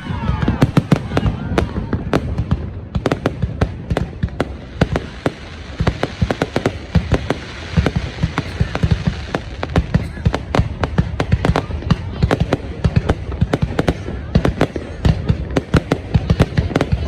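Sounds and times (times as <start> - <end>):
fireworks bangs: 0.0 - 17.0
low rumble of explosions: 0.0 - 17.0.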